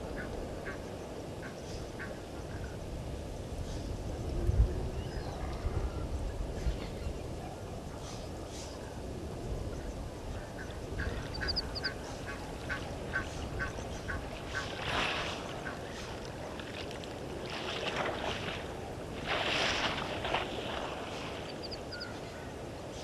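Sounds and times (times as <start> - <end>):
birds calling: 10.5 - 14.8, 21.4 - 22.4
high bird trills: 11.0 - 12.4, 21.5 - 22.2.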